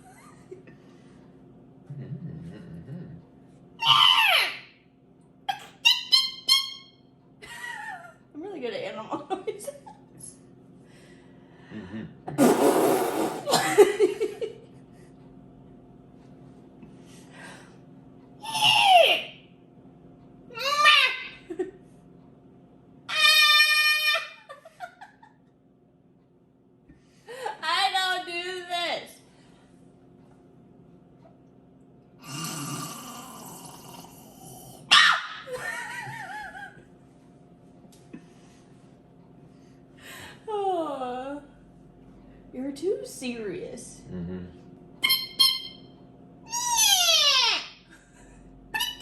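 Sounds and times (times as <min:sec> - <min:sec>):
person making mouth noises: 0:01.9 - 0:03.2, 0:12.3 - 0:13.5.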